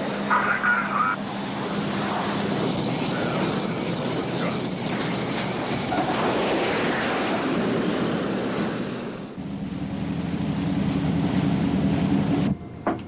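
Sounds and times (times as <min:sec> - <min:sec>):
high wavering whine: 0:00.0 - 0:07.5
jet aircraft flying past: 0:00.0 - 0:13.0.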